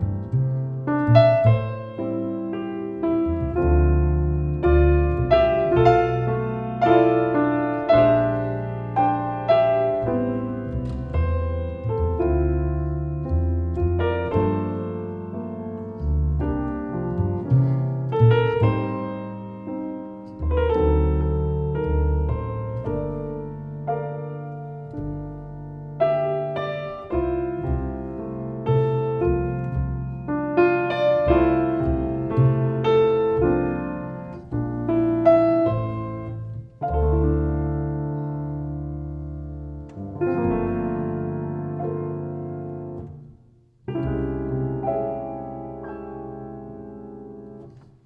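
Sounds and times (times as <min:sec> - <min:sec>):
double bass sustained notes: 0:00.0 - 0:48.0
piano chords and melody: 0:00.0 - 0:48.0.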